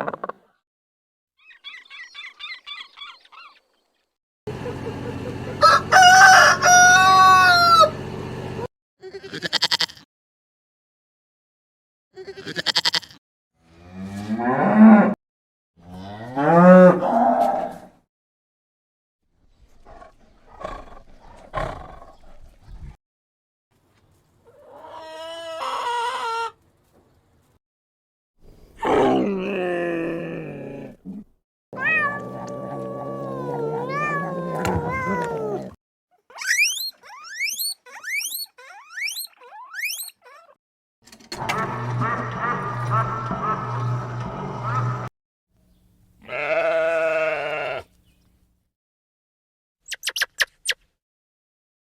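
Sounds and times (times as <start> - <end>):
cattle mooing: 15.8 - 17.8, 32.1 - 35.8, 46.3 - 47.8
cat meowing: 31.8 - 35.7
small animal squealing: 31.8 - 40.6.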